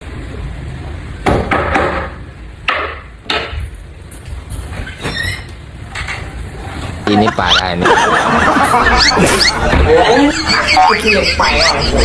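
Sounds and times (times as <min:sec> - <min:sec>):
hard knocks with rattle: 0:01.2 - 0:03.7.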